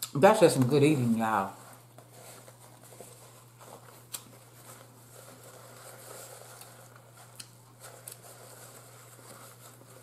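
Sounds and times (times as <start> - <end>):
chewing and wet mouth sounds: 6.6 - 8.2.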